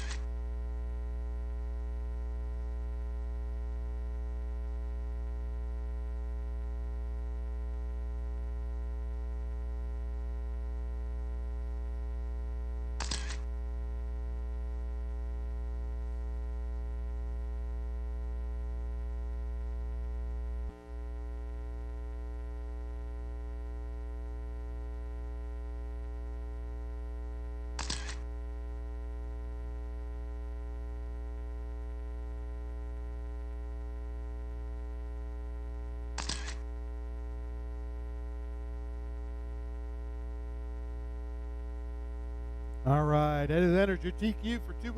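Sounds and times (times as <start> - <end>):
electrical mains hum: 0.0 - 44.9
short sharp clicks: 13.0 - 13.5, 27.8 - 28.3, 36.2 - 36.7.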